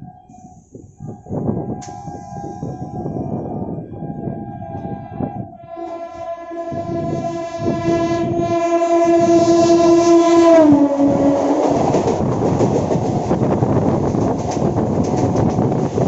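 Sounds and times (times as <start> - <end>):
train rumbling on rails: 0.0 - 16.0
train horn: 1.6 - 12.2.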